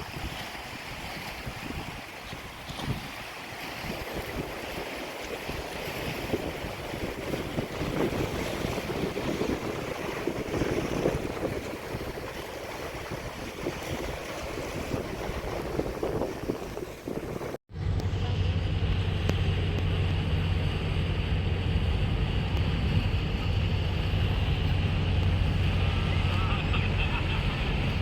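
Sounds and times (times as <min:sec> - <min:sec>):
wind on microphone: 0:00.0 - 0:18.0
waves: 0:00.0 - 0:28.0
ship engine drone: 0:03.3 - 0:28.0.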